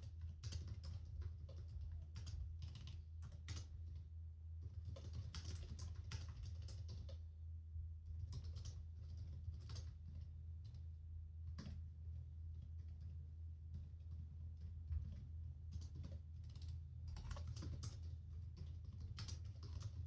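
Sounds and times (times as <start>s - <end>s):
steady low hum: 0.0s - 20.0s
keyboard typing: 0.4s - 3.8s, 4.6s - 7.2s, 15.0s - 20.0s.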